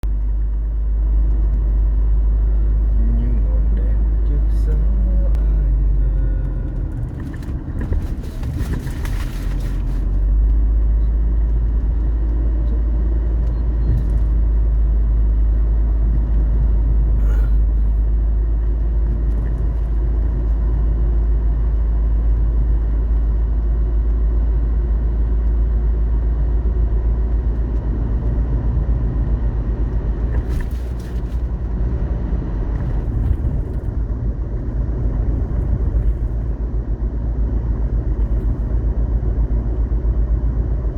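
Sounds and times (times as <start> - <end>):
road vehicle rumble: 0.0 - 40.9
wind buffeting microphone: 31.4 - 40.9.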